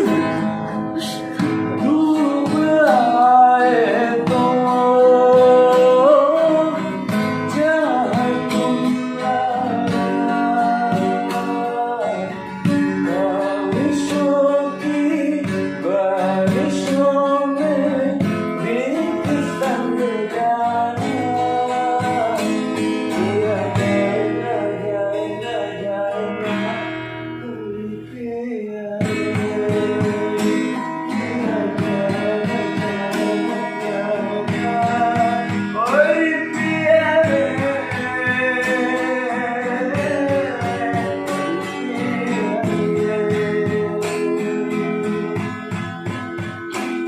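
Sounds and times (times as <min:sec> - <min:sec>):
acoustic guitar strummed: 0:00.0 - 0:47.0
person singing: 0:00.0 - 0:47.0.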